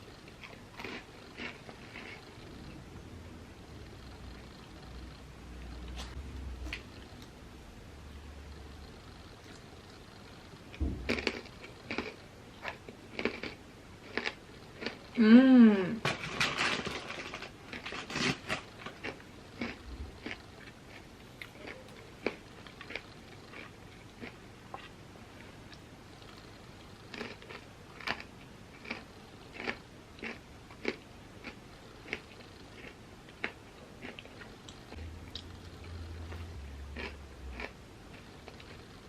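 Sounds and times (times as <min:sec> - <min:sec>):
person chewing crunchy chips: 0:00.3 - 0:02.3, 0:11.0 - 0:15.1, 0:16.6 - 0:25.8, 0:27.1 - 0:38.8.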